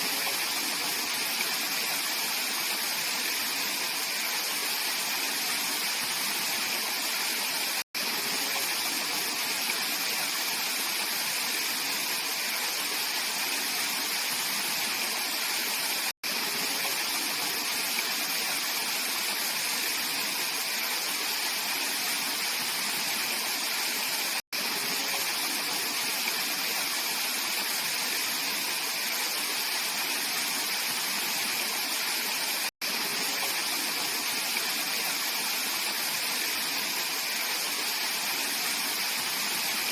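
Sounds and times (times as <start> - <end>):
mountain stream rushing over rocks: 0.0 - 39.9.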